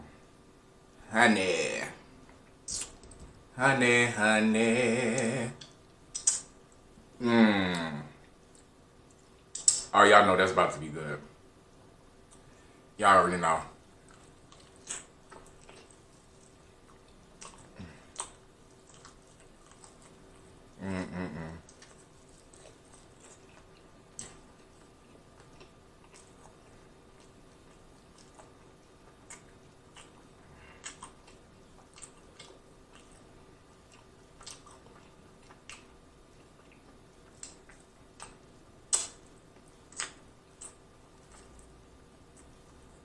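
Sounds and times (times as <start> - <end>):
faint steady hum: 0.0 - 43.0
wet mouth clicks and smacks: 2.7 - 3.2, 5.6 - 6.6, 8.5 - 9.9, 36.5 - 39.3.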